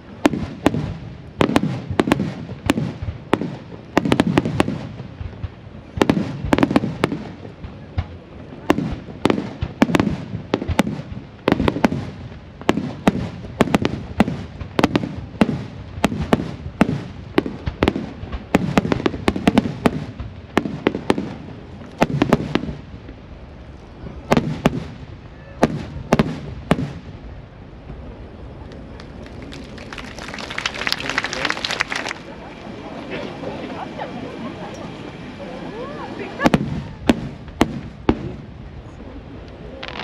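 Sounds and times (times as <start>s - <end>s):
firework shells bursting: 39.8s - 40.0s.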